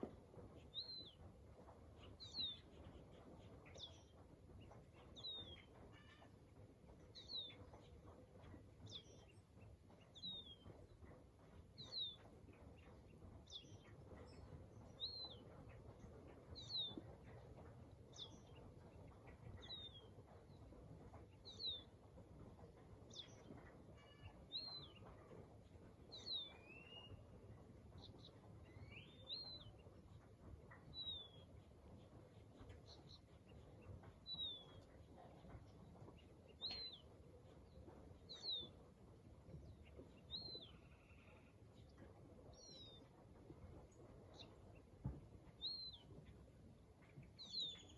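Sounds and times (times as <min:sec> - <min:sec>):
low background noise: 0:00.0 - 0:47.9.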